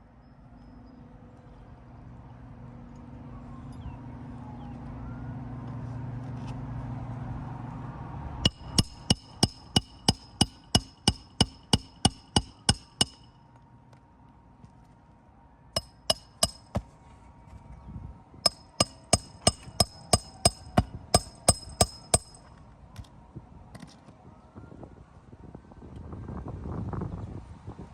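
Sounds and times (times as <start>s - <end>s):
hammer blows on metal: 8.4s - 13.4s, 15.8s - 16.9s, 18.4s - 22.5s.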